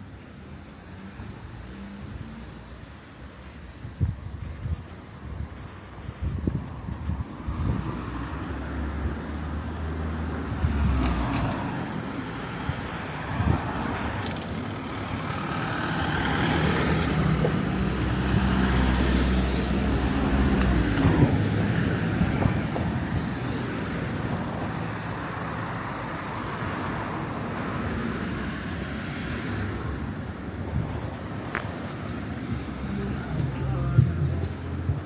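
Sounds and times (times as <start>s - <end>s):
steady road noise: 0.0s - 35.0s
vehicle engine passing by: 14.8s - 23.9s.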